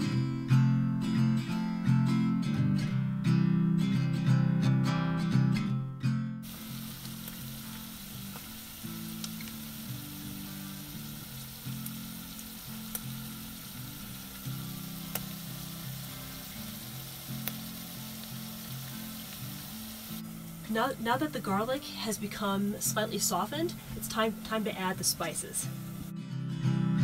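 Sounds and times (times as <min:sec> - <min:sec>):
strummed guitar tune: 0:00.0 - 0:27.0
onion and garlic sizzling in oil: 0:06.4 - 0:26.1.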